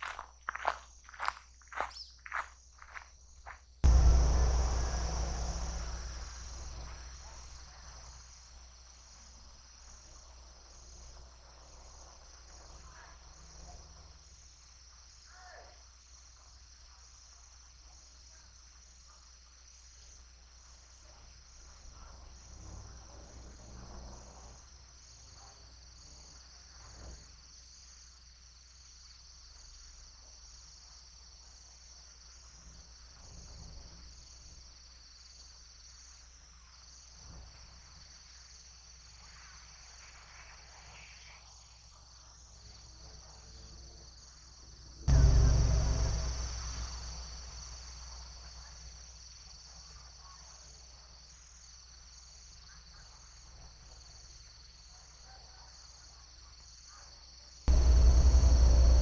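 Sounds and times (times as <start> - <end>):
insect chorus trilling: 0.0 - 59.0
loud low thump: 3.8 - 7.4, 45.1 - 46.3.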